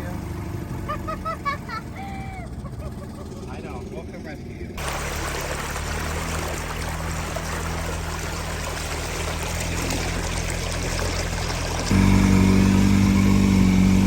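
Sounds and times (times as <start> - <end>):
small boat motor running: 0.0 - 14.0
water splashing along hull: 4.8 - 14.0.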